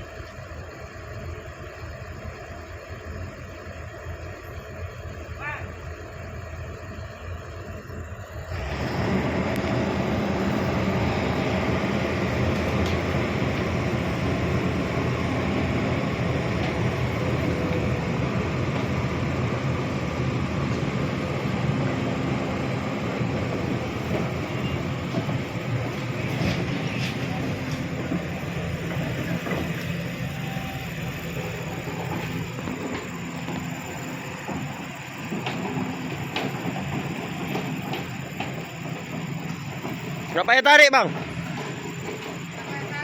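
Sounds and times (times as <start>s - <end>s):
heavy machine diesel engine: 0.0s - 43.0s.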